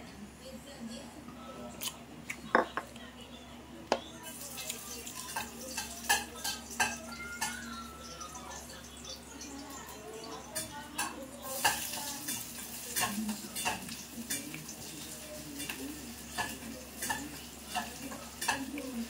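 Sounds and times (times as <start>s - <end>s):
fingers squelching food in a bowl: 10.5s - 19.0s.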